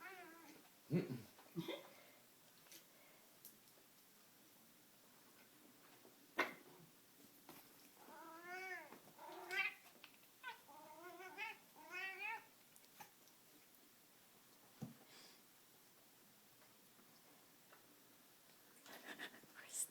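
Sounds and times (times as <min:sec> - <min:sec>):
cat yelling: 0:10.4 - 0:12.5.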